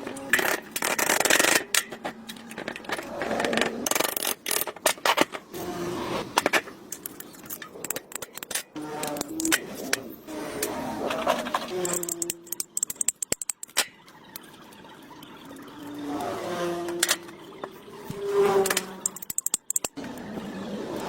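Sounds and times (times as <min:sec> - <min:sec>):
metal scraping on engine part: 0:00.0 - 0:13.9.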